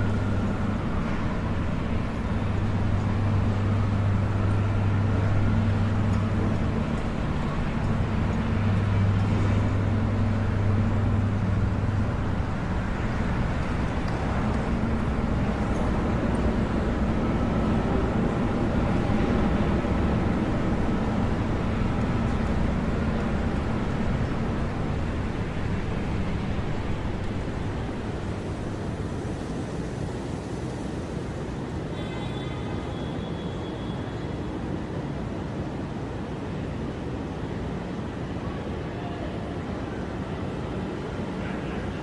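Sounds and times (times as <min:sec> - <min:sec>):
low steady hum: 0:00.0 - 0:31.7
street traffic noise: 0:00.0 - 0:42.0.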